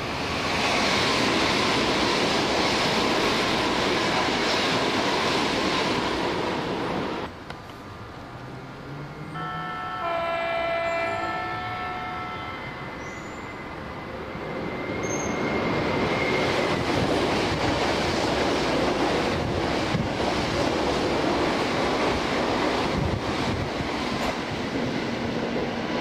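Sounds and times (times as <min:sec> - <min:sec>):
wheels rushing on rail: 0:00.0 - 0:26.0
train horn chord: 0:09.2 - 0:13.1.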